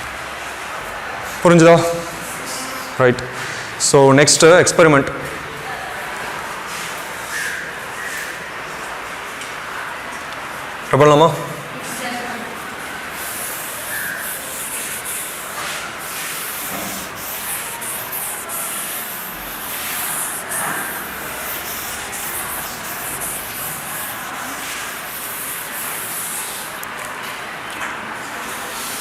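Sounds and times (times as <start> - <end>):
scratchy rubbing with hiss: 13.0 - 26.9
small irregular strokes: 13.0 - 26.9.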